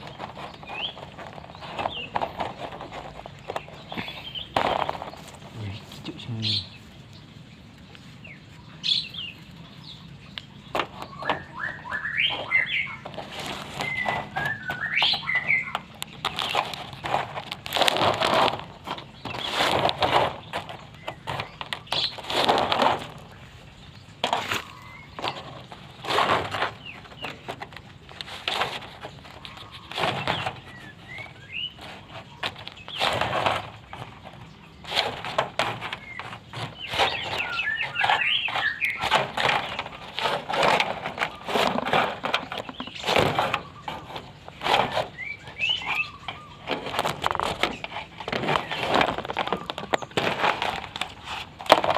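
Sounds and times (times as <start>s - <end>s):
high rising bird chirps: 11.1s - 13.0s.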